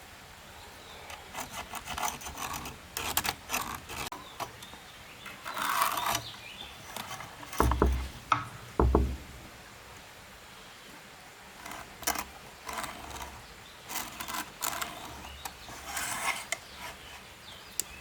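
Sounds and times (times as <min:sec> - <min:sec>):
wood scraping and rubbing: 0:01.4 - 0:04.6, 0:05.2 - 0:09.6, 0:11.6 - 0:17.3
small knocks: 0:06.9 - 0:09.6
heavy thumps: 0:07.5 - 0:09.7.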